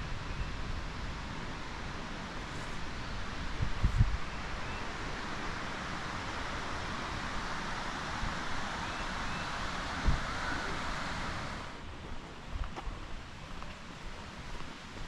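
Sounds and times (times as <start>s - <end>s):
river water rushing: 4.2s - 12.0s.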